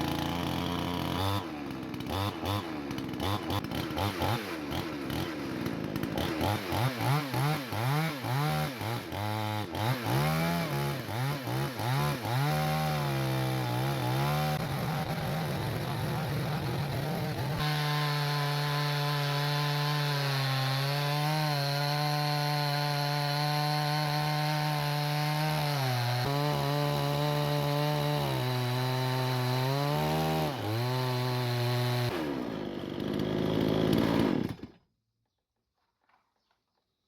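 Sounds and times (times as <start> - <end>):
chainsaw ripping a log: 0.0 - 34.8.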